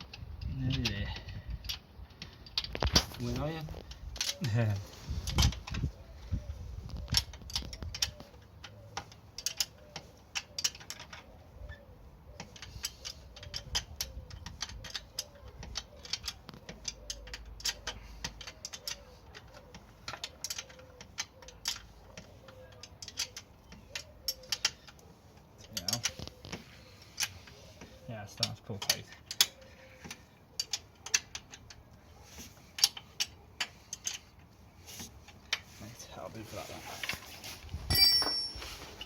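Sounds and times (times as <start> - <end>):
hand tool clicking on bolt: 7.1 - 35.7.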